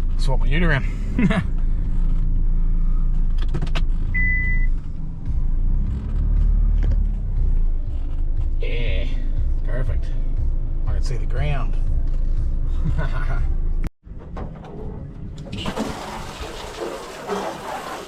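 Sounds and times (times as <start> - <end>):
vehicle engine running: 0.0 - 13.9
short electronic beep: 4.2 - 4.8.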